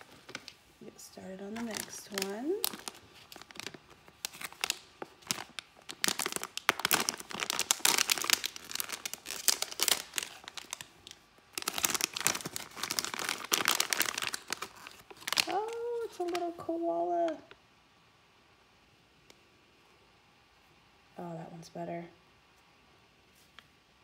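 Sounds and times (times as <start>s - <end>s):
packaging crinkling and tearing: 0.0s - 0.6s, 1.5s - 17.6s.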